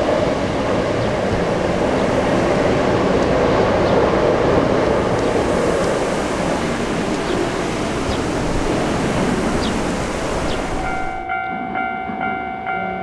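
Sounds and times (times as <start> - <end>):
electric train passing: 0.0 - 13.0.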